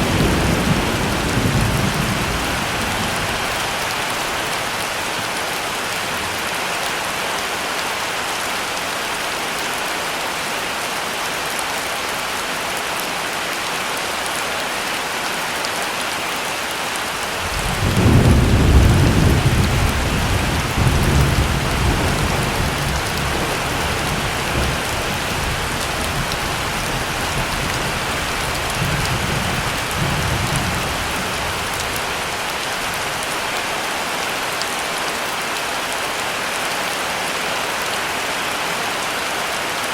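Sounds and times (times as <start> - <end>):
thunder rumbling: 0.0 - 4.2, 17.4 - 32.3
heavy rain: 0.0 - 39.9.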